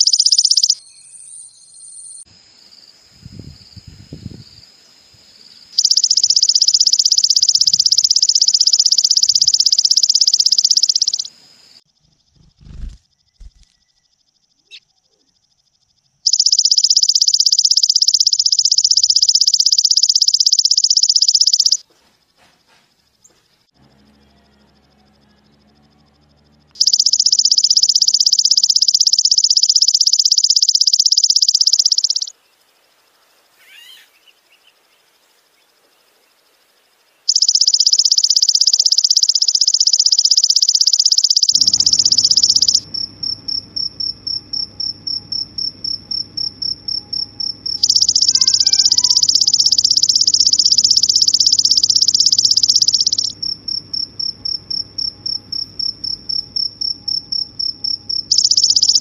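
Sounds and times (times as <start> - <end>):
insect pulsing trill: 0.0 - 21.8, 23.8 - 59.0
faint bird chirps: 0.0 - 59.0
insect buzzing: 2.1 - 14.1, 26.8 - 59.0.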